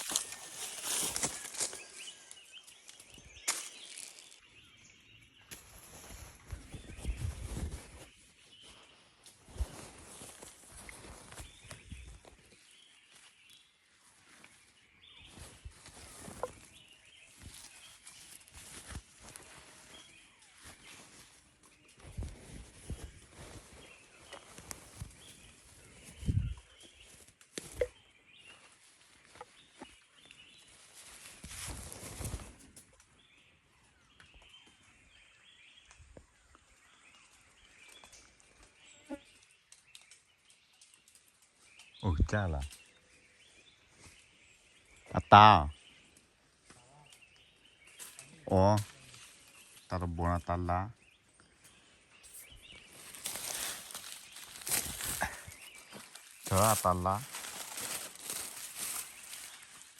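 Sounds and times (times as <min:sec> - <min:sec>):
rustling: 0:52.8 - 0:59.9.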